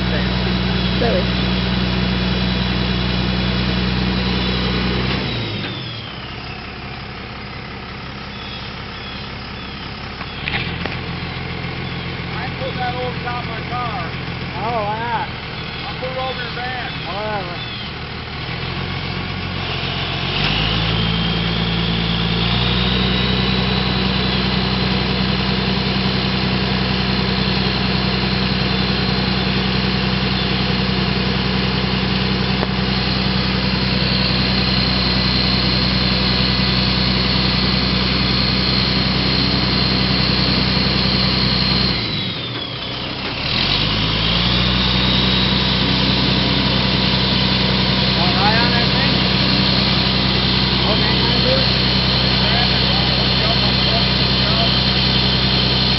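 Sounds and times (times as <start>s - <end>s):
truck engine running: 0.0s - 55.9s
high whine: 20.8s - 43.1s.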